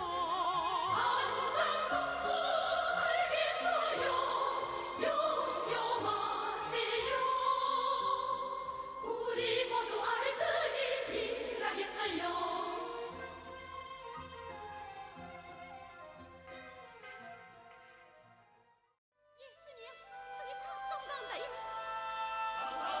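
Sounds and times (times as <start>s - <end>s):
opera singer with vibrato: 0.0s - 13.2s, 19.6s - 23.0s
orchestra: 0.0s - 18.7s, 19.5s - 23.0s.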